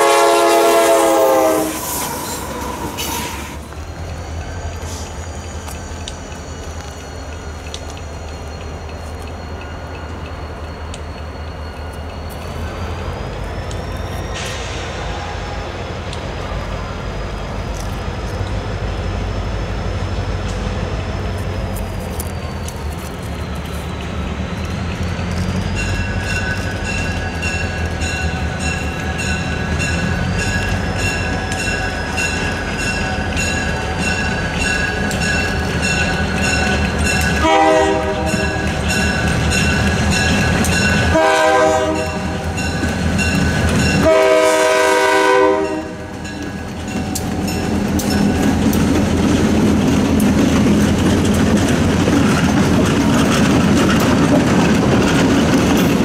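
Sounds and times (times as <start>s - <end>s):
locomotive air horn blasts: 0.0s - 2.4s, 37.4s - 38.6s, 41.1s - 42.4s, 44.0s - 46.2s
diesel locomotive engines rumbling: 0.0s - 56.0s
bell ringing: 42.0s - 44.1s.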